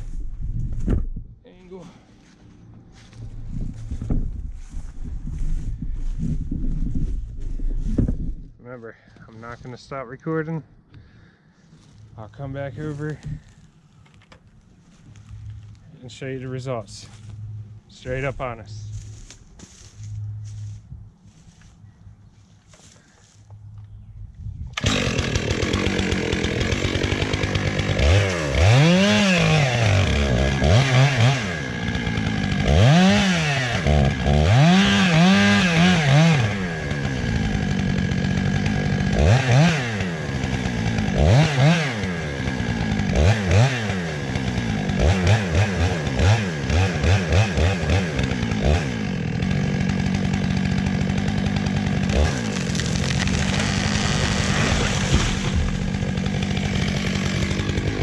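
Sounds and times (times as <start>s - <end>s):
chainsaw revving: 24.8s - 58.0s.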